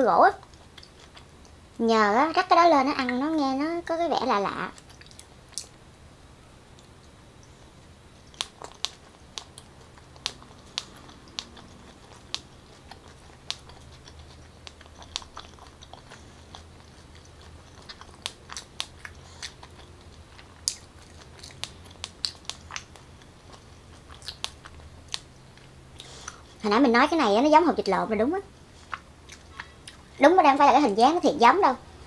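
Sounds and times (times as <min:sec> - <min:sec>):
wet chewing mouth clicks: 0:00.4 - 0:01.6, 0:04.7 - 0:05.8, 0:08.3 - 0:26.6.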